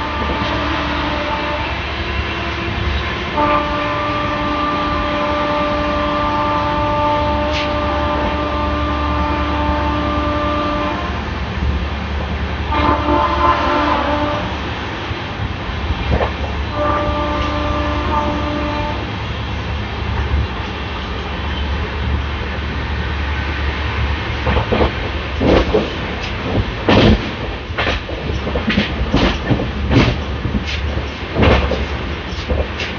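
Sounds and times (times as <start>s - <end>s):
locomotive horn blasts: 0.0s - 1.8s, 3.3s - 11.2s, 12.7s - 14.5s, 16.7s - 19.1s
train rumbling on track: 0.0s - 32.9s.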